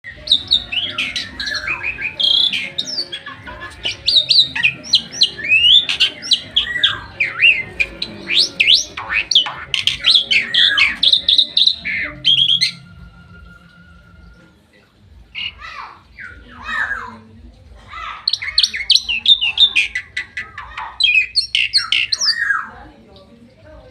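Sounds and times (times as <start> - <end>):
starling whistling and chirping: 0.0 - 12.9, 15.4 - 17.0, 18.2 - 22.7.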